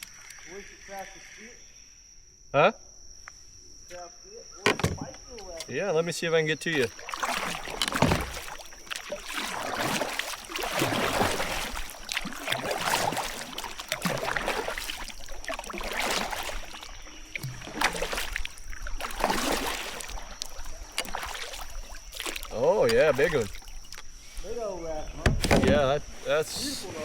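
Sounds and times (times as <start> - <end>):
paddle strokes splashing water: 6.6 - 27.0.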